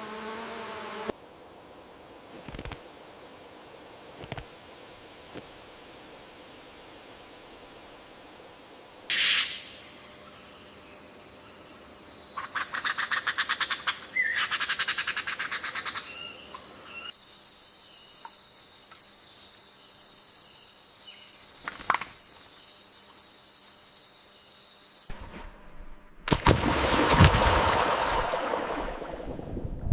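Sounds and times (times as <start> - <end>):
faint hiss-like background noise: 0.0 - 29.4
high insect tones: 9.1 - 25.1.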